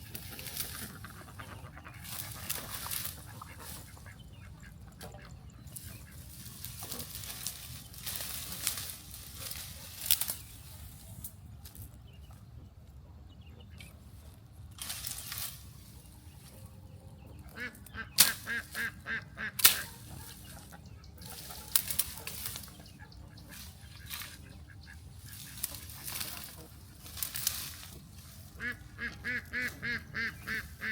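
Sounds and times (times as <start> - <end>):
ducks calling: 0.0 - 11.2, 12.2 - 30.9.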